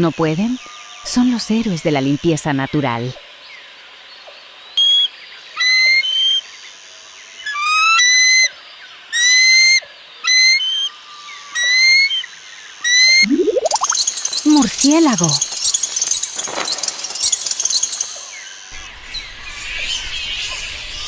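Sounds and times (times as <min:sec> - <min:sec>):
bird whistled calls: 0:12.9 - 0:21.0.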